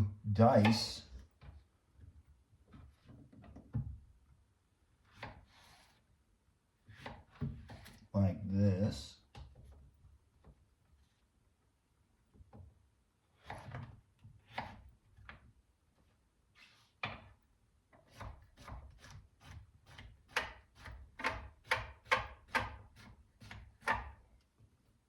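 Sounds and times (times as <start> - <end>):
knife chopping on cutting board: 18.1 - 24.2.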